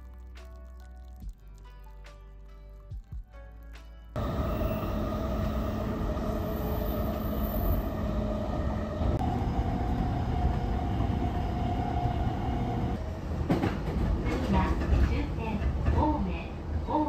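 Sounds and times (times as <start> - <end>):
electric train whine: 4.2 - 13.7
train rumble: 4.2 - 17.0.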